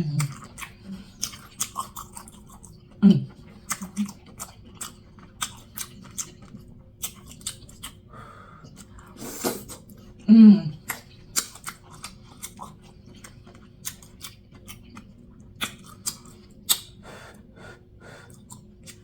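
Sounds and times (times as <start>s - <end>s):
close chewing with lip smacks: 0.0s - 17.5s, 18.2s - 19.0s
person humming low: 10.3s - 10.8s.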